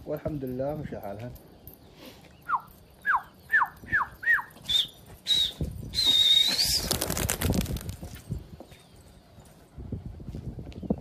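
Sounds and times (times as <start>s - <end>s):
person whistling: 2.5s - 6.7s.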